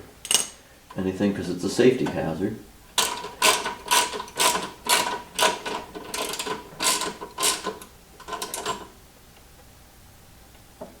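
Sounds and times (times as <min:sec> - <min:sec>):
ratchet wrench clicking: 0:03.0 - 0:08.8.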